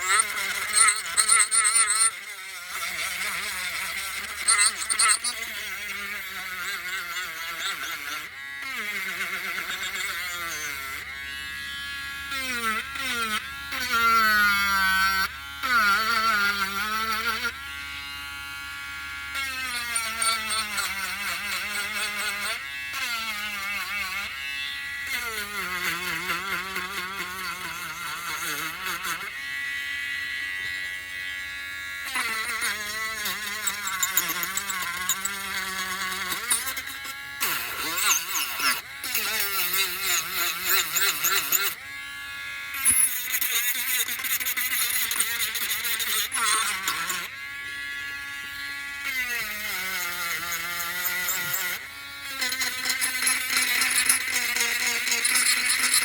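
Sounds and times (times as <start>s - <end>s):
electric sander running: 0.0s - 3.2s.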